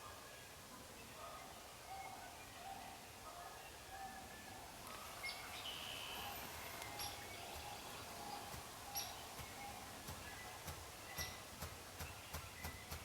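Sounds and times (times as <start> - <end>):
small songbirds chirping: 4.8 - 13.0.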